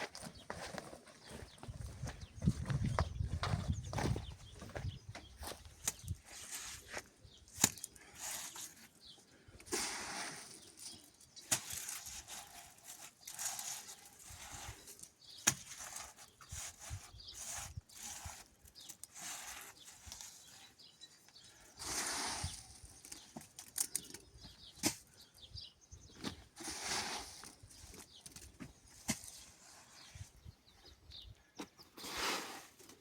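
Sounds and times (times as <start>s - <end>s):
tools scraping wet cement: 9.6s - 20.8s, 26.4s - 30.1s.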